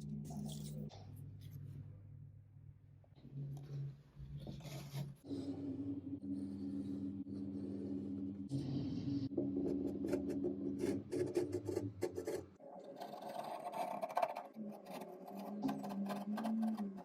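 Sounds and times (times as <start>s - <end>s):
steady low hum: 0.0s - 12.6s.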